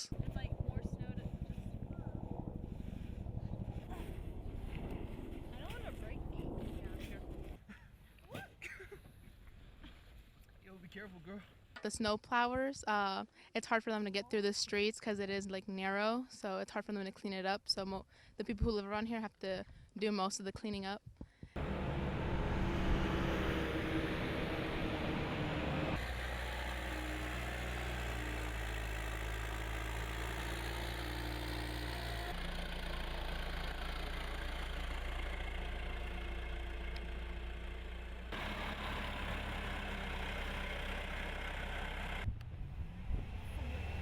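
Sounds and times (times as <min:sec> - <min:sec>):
engines humming: 0:00.0 - 0:07.6, 0:21.6 - 0:44.0.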